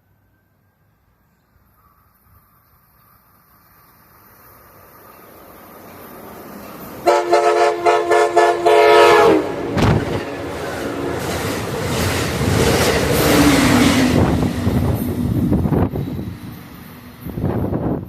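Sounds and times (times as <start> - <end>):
train wheels rumbling on rails: 1.9 - 18.0
train air horn blasts: 7.0 - 9.9.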